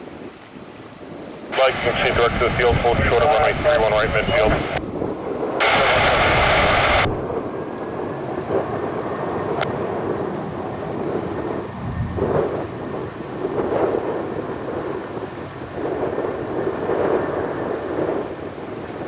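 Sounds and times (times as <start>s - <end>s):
jet engines rumbling on takeoff: 1.3s - 19.0s
radio static burst: 1.5s - 4.8s, 5.6s - 7.2s.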